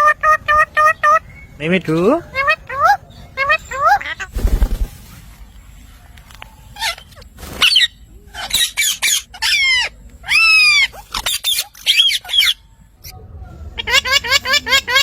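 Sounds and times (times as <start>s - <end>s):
parrot squawking: 8.4s - 12.6s.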